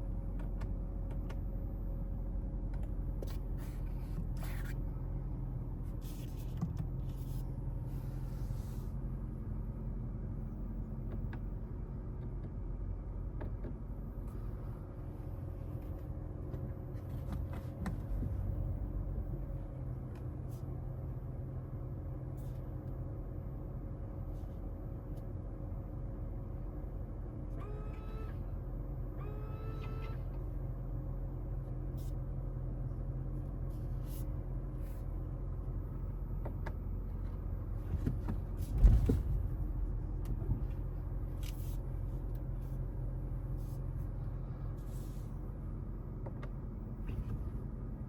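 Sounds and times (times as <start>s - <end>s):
car cabin hum: 0.0s - 48.0s
thump: 37.9s - 39.5s.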